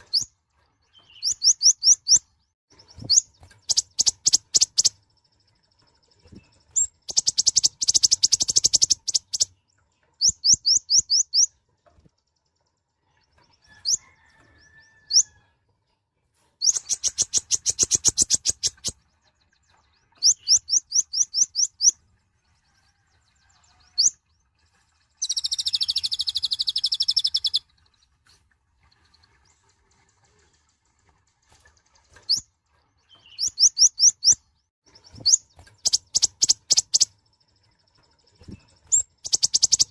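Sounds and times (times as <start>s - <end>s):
bird high-pitched chirping trills: 0.0s - 15.5s, 16.6s - 28.2s, 32.1s - 39.9s
buzzy bird trill: 35.0s - 37.2s, 38.4s - 39.9s.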